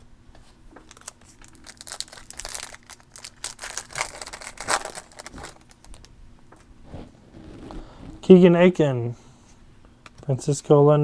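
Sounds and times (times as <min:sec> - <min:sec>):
foil wrapper crinkling: 0:00.8 - 0:06.1.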